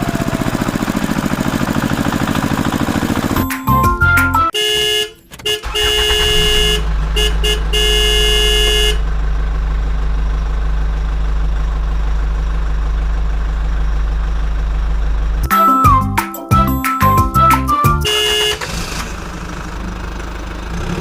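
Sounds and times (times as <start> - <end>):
vehicle horn blasts: 4.3 - 9.1, 17.3 - 18.8
low engine hum: 5.7 - 21.0.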